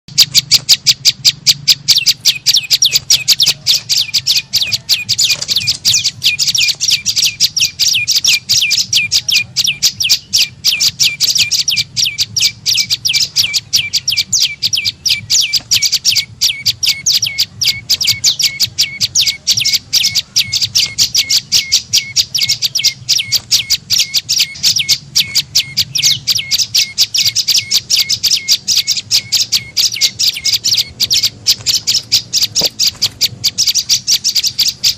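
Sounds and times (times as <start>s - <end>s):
sharp high bird chirps: 0.1s - 34.9s.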